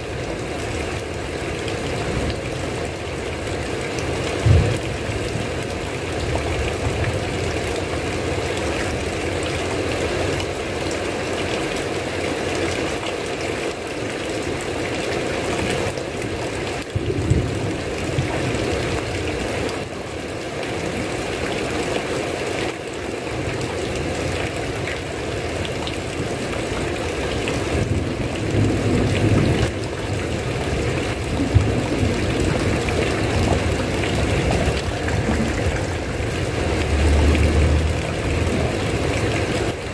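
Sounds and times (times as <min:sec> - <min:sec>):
steady rain falling: 0:00.0 - 0:39.9
low rumbles: 0:31.4 - 0:39.8.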